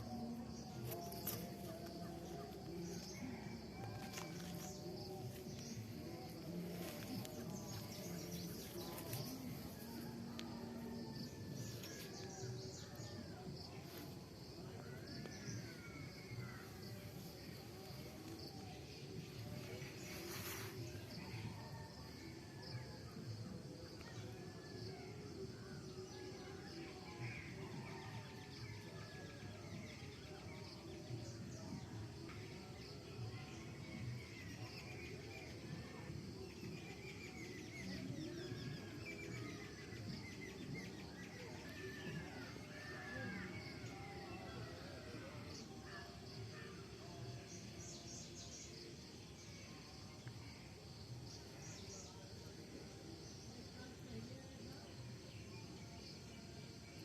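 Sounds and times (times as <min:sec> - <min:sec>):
low steady background noise: 0:00.0 - 0:57.0.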